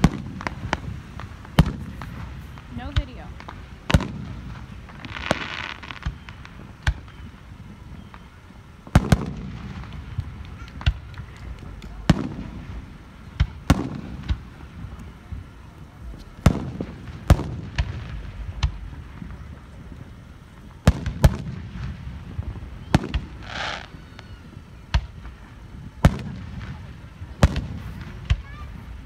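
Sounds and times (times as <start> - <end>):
fireworks bursting with bangs: 0.0 - 29.0
low rumbling echo: 6.1 - 29.0.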